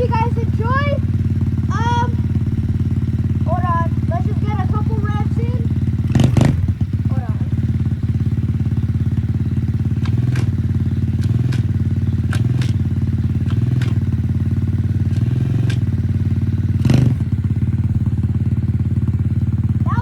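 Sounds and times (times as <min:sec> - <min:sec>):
motorcycle engine idling: 0:00.0 - 0:20.0
light clicks: 0:15.1 - 0:15.9.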